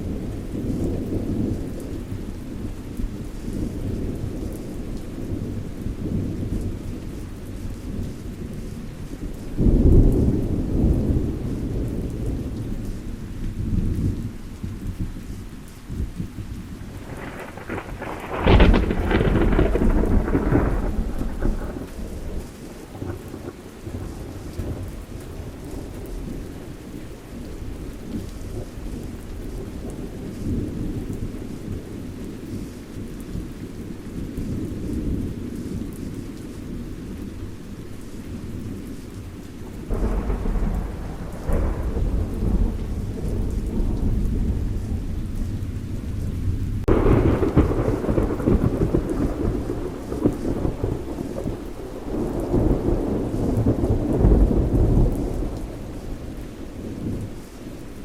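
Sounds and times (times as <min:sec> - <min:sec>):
rolling thunder: 0:00.0 - 0:15.2, 0:15.9 - 0:26.6, 0:39.6 - 0:57.4
steady rain: 0:00.0 - 0:58.0
thunderclap: 0:16.9 - 0:23.6, 0:39.8 - 0:56.3.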